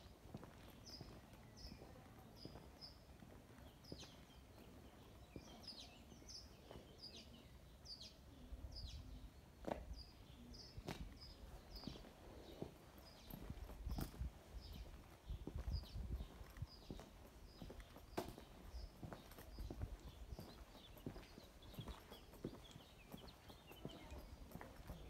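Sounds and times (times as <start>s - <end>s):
footsteps on paved lane: 0.0s - 7.5s, 9.6s - 25.0s
small birds chirping: 0.0s - 25.0s.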